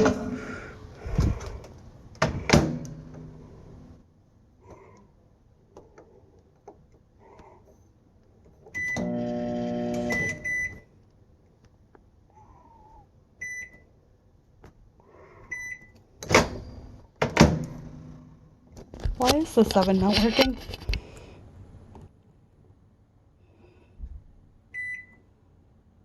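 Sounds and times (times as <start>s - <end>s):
microwave oven humming: 8.7s - 11.0s
microwave keypad beeping: 8.8s - 10.9s, 24.8s - 25.2s.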